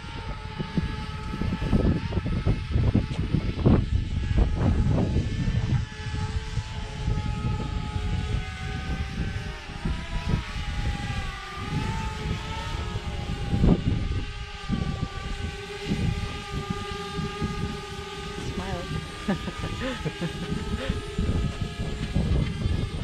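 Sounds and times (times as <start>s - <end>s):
drone propellers whining: 0.0s - 23.0s
wind rumbling on microphone: 0.0s - 23.0s.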